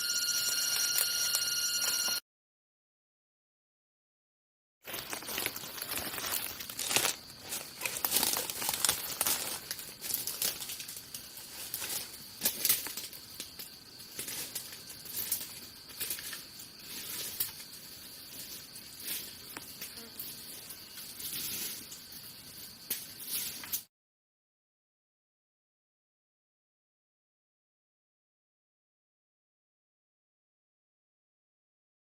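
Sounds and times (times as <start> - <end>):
faint high-pitched tone: 0.0 - 2.2
rustling and crinkling: 4.8 - 20.1.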